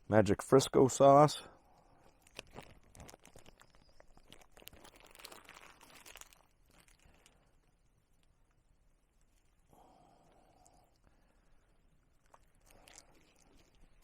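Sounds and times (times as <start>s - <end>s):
faint crackling and crinkling: 0.0s - 14.0s.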